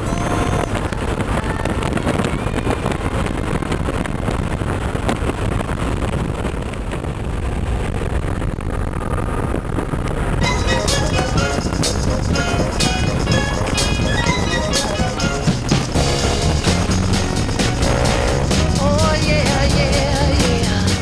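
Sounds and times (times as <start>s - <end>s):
motorcycle engine rumble: 0.0s - 21.0s
wind rushing over microphone: 0.0s - 21.0s
music: 10.4s - 21.0s.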